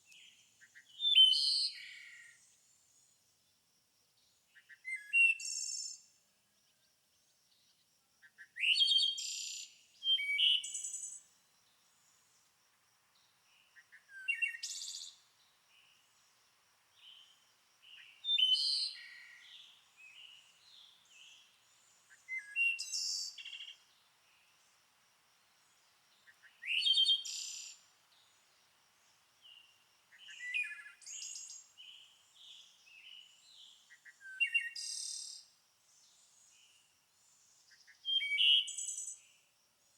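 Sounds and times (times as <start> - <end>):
soft bird chirps: 13.2 - 16.2, 17.0 - 24.6, 25.7 - 35.4.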